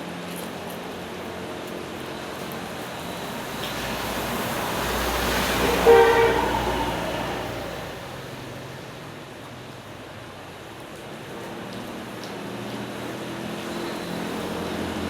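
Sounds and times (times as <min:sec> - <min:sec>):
vehicle passing by: 0:03.3 - 0:08.8
short horn blast: 0:05.4 - 0:07.9.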